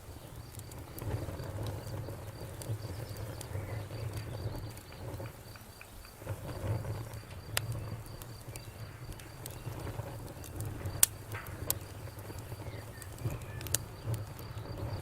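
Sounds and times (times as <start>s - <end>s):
low rumble of flames: 0.0s - 15.0s
sharp pop from fire: 0.0s - 15.0s
wood crackling in fire: 0.0s - 15.0s.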